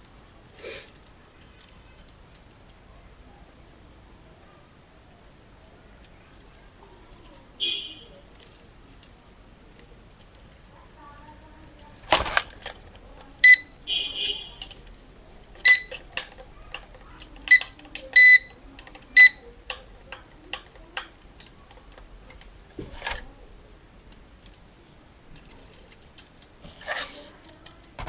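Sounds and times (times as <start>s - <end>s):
short electronic toy beeps: 13.4s - 14.5s, 15.6s - 16.0s, 17.5s - 18.6s, 19.2s - 19.5s
small plastic clicks: 14.6s - 23.3s.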